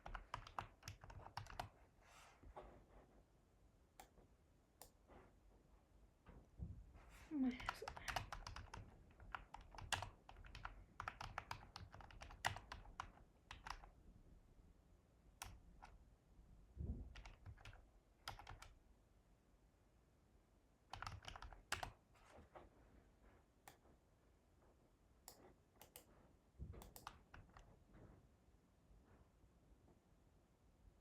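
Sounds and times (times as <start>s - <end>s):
typing on computer keyboard: 0.0s - 1.8s, 7.6s - 14.0s, 15.4s - 16.0s, 17.1s - 18.8s, 20.9s - 22.0s, 25.3s - 26.1s, 26.8s - 27.7s.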